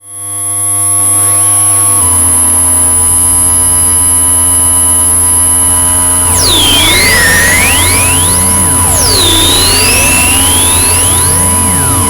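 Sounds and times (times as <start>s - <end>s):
high thin whine: 6.3s - 12.0s
synthesizer drone: 6.3s - 12.0s.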